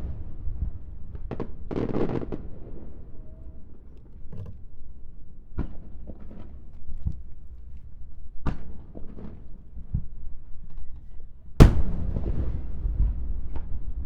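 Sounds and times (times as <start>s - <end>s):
firework shells bursting: 11.6s - 13.1s.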